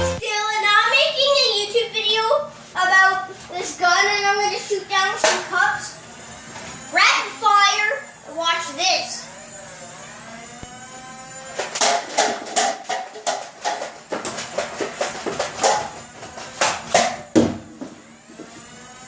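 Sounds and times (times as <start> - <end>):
toy blaster firing darts: 5.0 - 18.0
darts knocking down cups: 11.6 - 16.0, 16.6 - 18.0.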